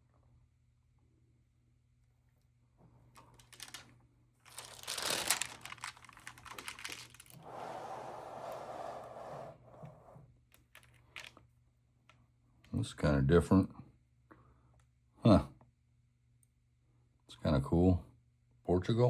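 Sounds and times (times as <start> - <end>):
album pages turning: 3.3 - 7.5
crinkling rustle of sheets: 3.3 - 9.4
sliding rubbing sound: 7.4 - 10.2.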